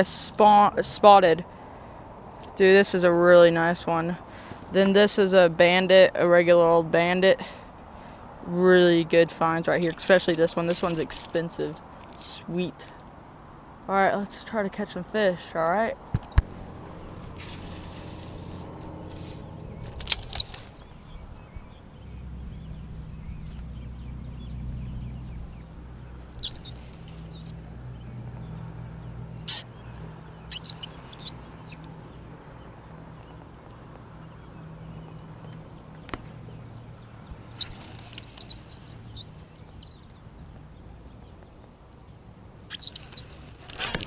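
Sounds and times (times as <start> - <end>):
small birds chirping: 17.6 - 44.0.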